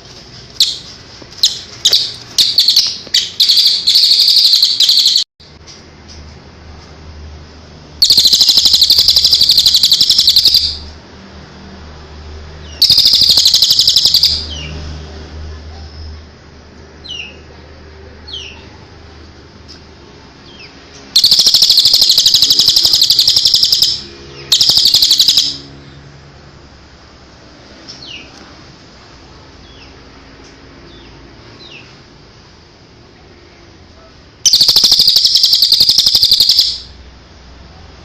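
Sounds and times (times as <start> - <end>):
faint downward chirps: 0.6 - 5.3, 8.0 - 10.9, 21.2 - 25.7, 34.5 - 37.0
songbird buzzy trills: 0.6 - 5.3, 8.0 - 10.9, 12.7 - 14.6, 21.2 - 25.7, 34.4 - 37.0.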